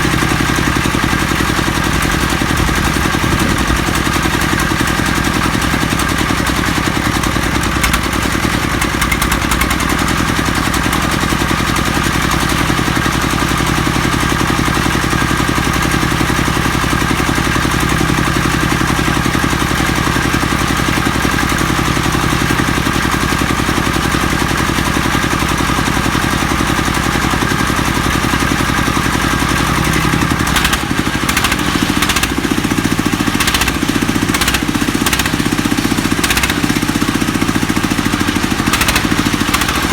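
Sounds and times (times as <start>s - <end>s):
engine running steadily: 0.0s - 39.9s
sharp clicks: 30.5s - 32.4s, 33.4s - 35.5s, 36.2s - 36.8s, 38.7s - 39.9s.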